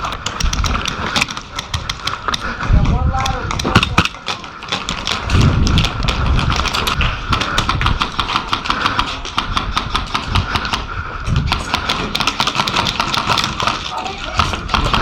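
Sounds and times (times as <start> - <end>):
airsoft guns firing: 3.6 - 10.9, 11.5 - 15.0.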